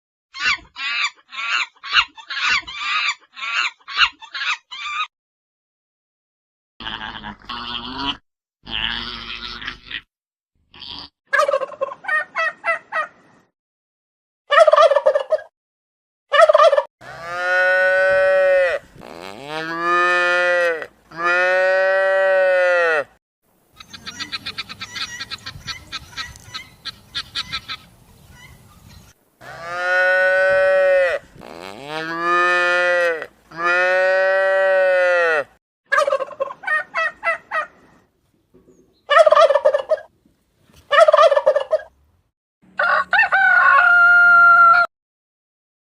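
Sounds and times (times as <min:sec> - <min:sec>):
rapid stuttering poultry calls: 0:08.7 - 0:10.1, 0:10.8 - 0:13.2, 0:14.5 - 0:15.5, 0:16.3 - 0:16.9, 0:23.7 - 0:29.0, 0:35.9 - 0:38.0, 0:39.1 - 0:40.1, 0:40.9 - 0:42.0
cattle mooing: 0:17.0 - 0:23.1, 0:29.4 - 0:35.5.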